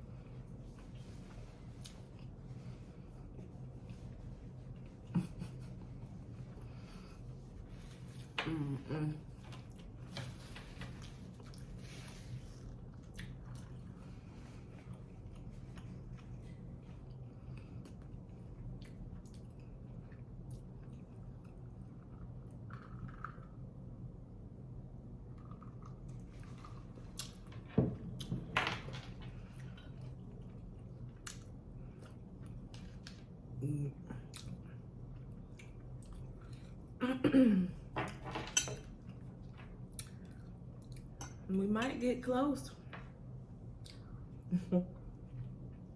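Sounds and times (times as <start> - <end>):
low steady hum: 0.0 - 45.9
person chewing with wet smacking: 1.6 - 2.4, 10.8 - 23.4, 25.3 - 28.4, 29.4 - 33.6, 34.2 - 36.9, 38.9 - 41.4, 43.6 - 44.4
chewing and lip smacks: 12.8 - 13.8, 29.6 - 33.3, 34.3 - 36.8.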